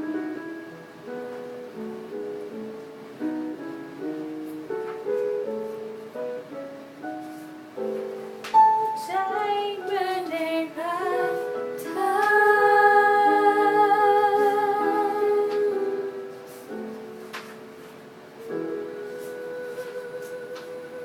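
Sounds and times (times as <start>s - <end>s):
instrumental accompaniment: 0.0s - 21.0s
woman singing slow song: 9.0s - 16.4s, 18.6s - 21.0s.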